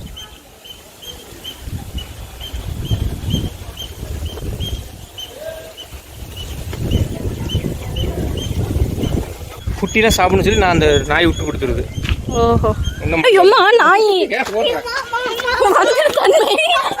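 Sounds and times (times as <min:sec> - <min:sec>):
microphone handling noise: 0:01.6 - 0:13.2.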